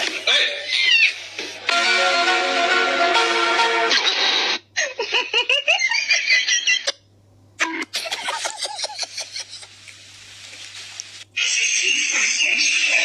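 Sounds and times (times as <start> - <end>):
person giggling and laughing: 4.8 - 7.0, 7.6 - 9.8.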